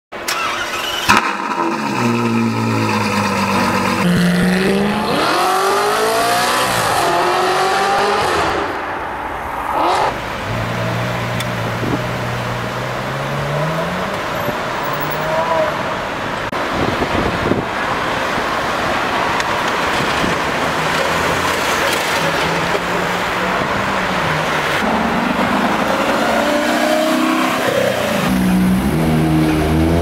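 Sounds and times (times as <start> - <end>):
supercar engine accelerating: 0.5 - 8.6, 24.8 - 30.0.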